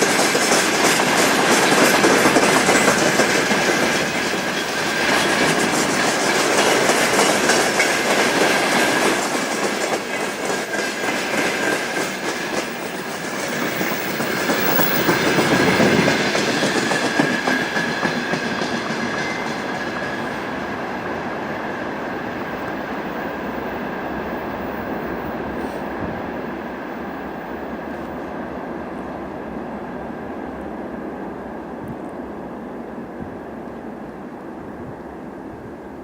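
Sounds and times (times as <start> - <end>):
train wheels clacking on rails: 0.0 - 28.4.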